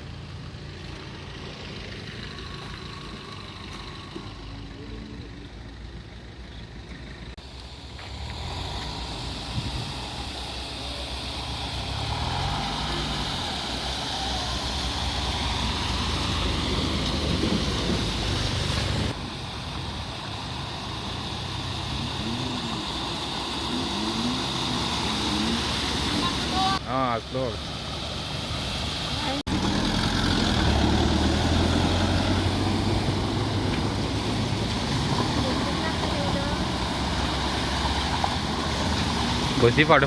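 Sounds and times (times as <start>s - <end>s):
car engine running: 0.0s - 40.0s
rush of water: 8.2s - 40.0s.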